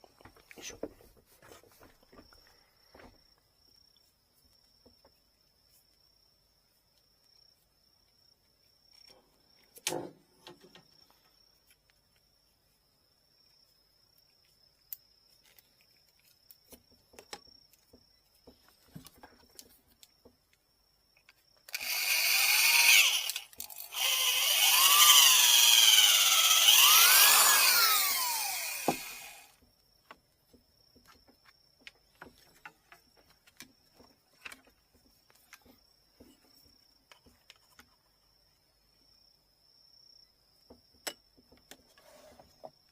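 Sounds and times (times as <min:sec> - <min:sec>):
electric drill boring: 0:21.7 - 0:29.6.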